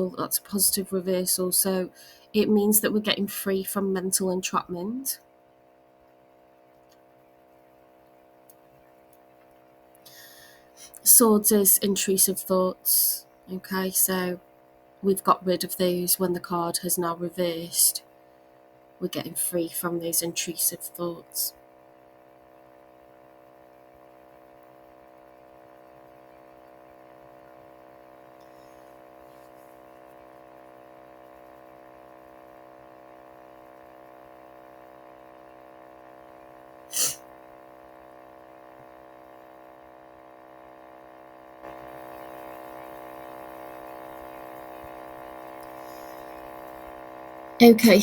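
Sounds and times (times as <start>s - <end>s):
electrical hum: 0.0s - 48.0s
puff of noise: 36.9s - 37.2s.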